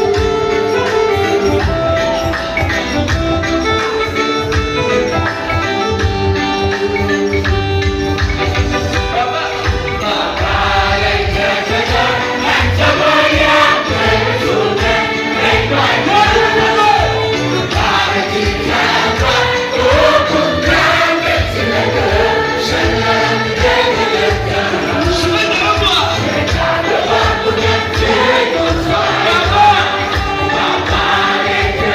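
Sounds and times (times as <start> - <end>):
group of voices singing gospel: 8.8 - 31.9.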